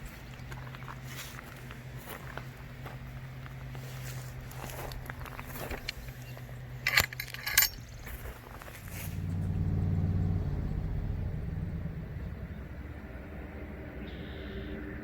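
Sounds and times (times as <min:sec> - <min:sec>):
rattling clicks: 0:05.0 - 0:08.4
passing vehicle rumble: 0:07.8 - 0:15.0.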